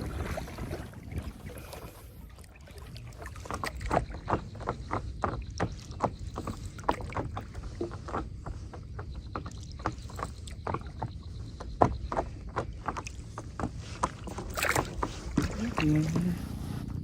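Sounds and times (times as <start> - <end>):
splashes and knocks in water: 0.0 - 17.0
low steady rumble: 15.5 - 17.0.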